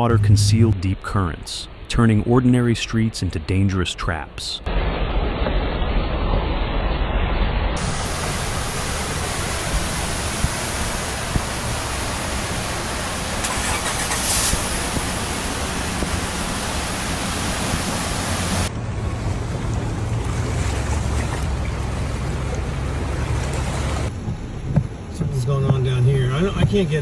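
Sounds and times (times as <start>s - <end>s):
water rushing: 0.0s - 24.1s
vehicle engine running: 4.7s - 24.2s.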